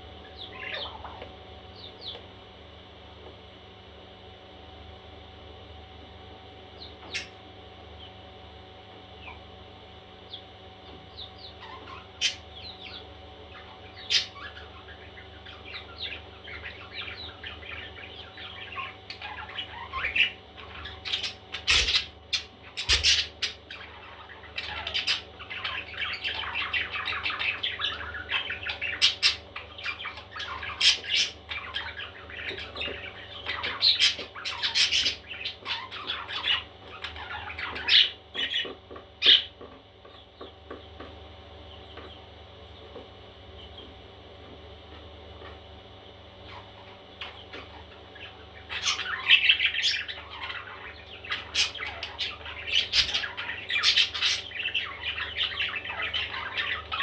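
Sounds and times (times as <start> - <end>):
steady low hum: 0.0 - 57.0
baby parrots chirping and squawking: 0.4 - 1.2, 11.1 - 40.5, 46.4 - 57.0.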